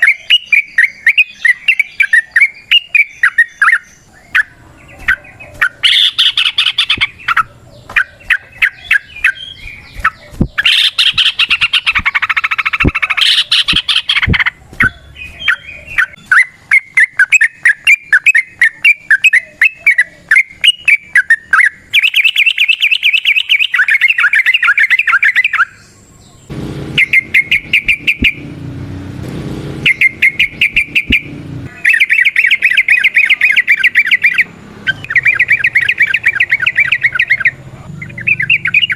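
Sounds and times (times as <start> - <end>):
bulbuls calling in rapid trills: 0.0 - 28.5, 29.8 - 38.9
low hazy noise: 26.5 - 31.9.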